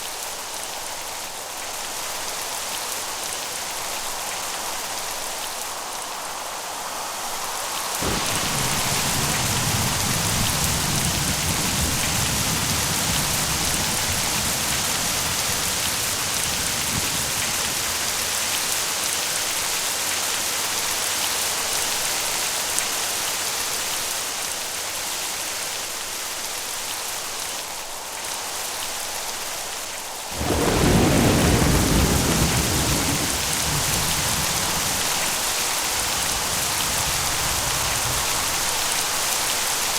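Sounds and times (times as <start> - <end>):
steady rain: 0.0 - 39.9
thunderclap: 8.0 - 18.6, 30.3 - 38.9
thunder rumbling: 8.0 - 18.7, 30.3 - 39.0.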